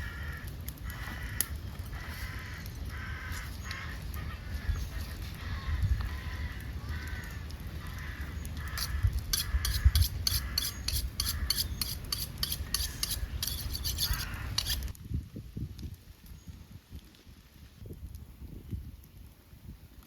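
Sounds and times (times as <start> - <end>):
rhythmic scraping strokes: 8.7 - 14.9.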